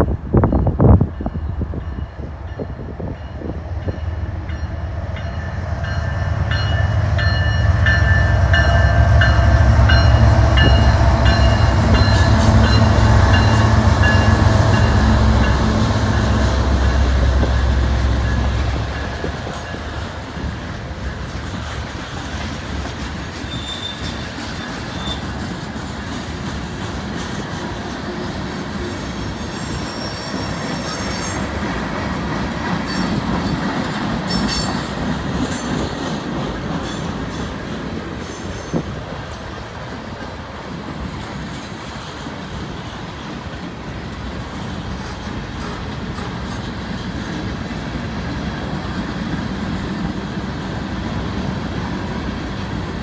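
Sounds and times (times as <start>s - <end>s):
locomotive engine rumble: 0.0s - 23.0s
freight cars wheel and rail noise: 0.0s - 53.0s
wheel squeal: 23.2s - 25.3s, 29.5s - 31.4s.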